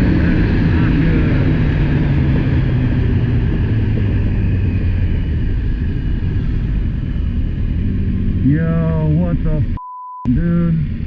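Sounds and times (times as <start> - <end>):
wind noise: 0.0 - 9.8.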